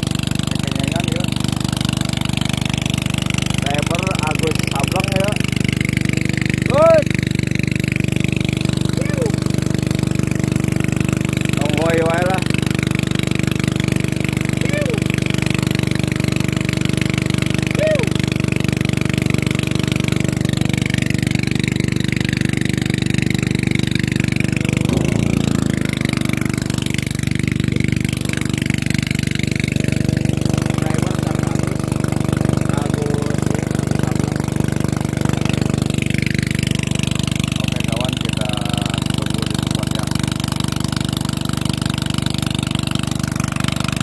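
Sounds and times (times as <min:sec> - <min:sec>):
boat engine running: 0:00.0 - 0:44.0.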